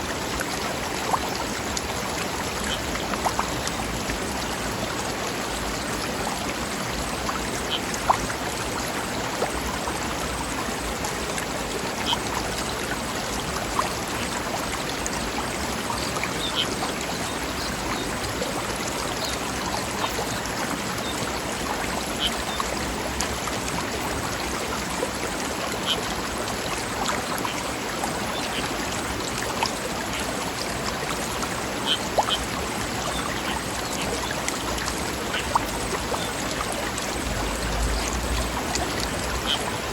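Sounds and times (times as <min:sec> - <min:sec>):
small water splashes: 0:00.0 - 0:39.9
stream running over rocks: 0:00.0 - 0:39.9.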